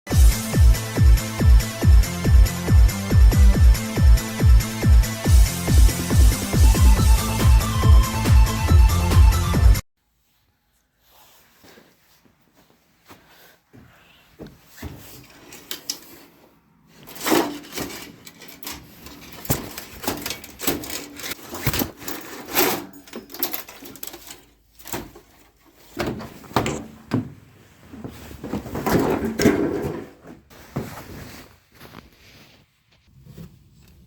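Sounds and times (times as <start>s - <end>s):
objects being handled: 14.4s - 34.0s.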